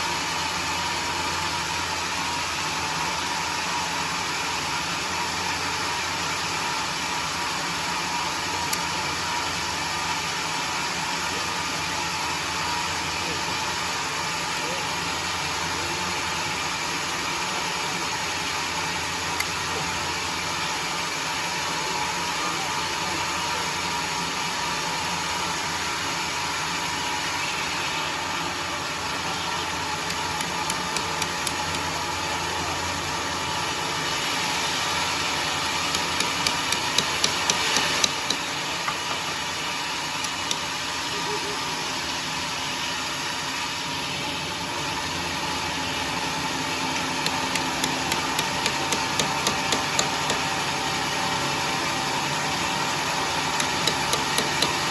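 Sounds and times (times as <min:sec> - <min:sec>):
sawmill engine running: 0:11.2 - 0:41.8, 0:42.4 - 0:54.9
sharp clicks: 0:30.1 - 0:31.9, 0:35.6 - 0:38.5, 0:46.9 - 0:50.5, 0:53.6 - 0:54.9.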